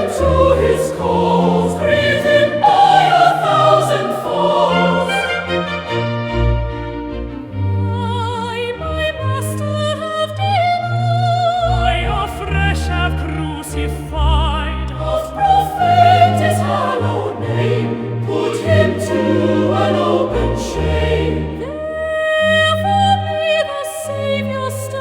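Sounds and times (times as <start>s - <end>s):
choir singing a hymn: 0.0s - 6.4s, 14.7s - 25.0s
orchestral accompaniment: 0.0s - 25.0s.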